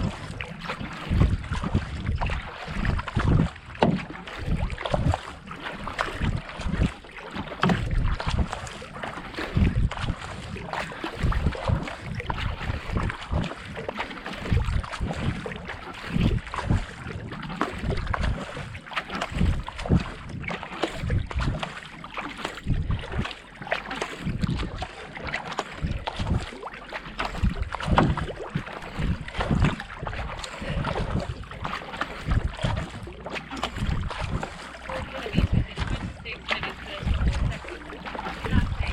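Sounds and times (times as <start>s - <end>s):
wind buffeting microphone: 0.0s - 21.7s, 22.6s - 23.4s, 24.2s - 26.6s, 27.2s - 38.9s
paddle splashing in water: 0.0s - 38.9s
water wash: 0.0s - 38.9s
rhythmic low thumps: 9.5s - 10.3s, 27.3s - 38.9s.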